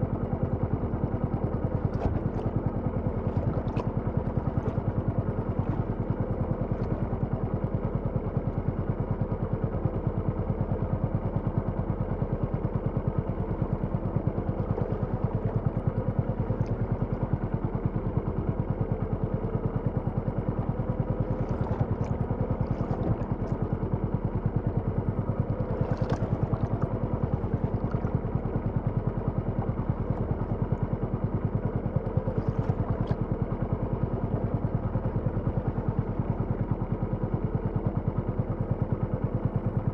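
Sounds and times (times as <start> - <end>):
small engine running: 11.3 - 39.9.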